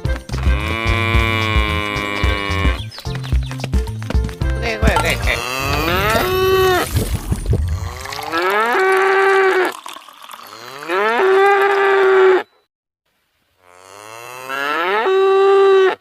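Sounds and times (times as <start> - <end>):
pitched moo-like call: 10.6 - 12.5, 13.6 - 16.0.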